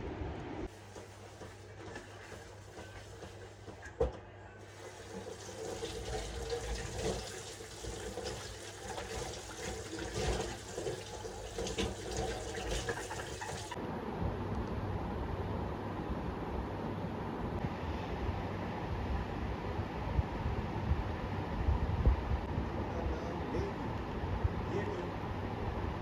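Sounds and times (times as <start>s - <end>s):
water splashing and pattering: 4.7s - 13.8s.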